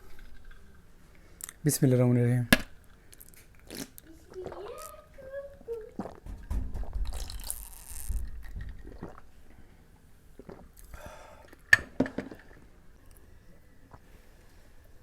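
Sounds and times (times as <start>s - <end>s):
wet chewing and squelching: 5.9s - 9.3s.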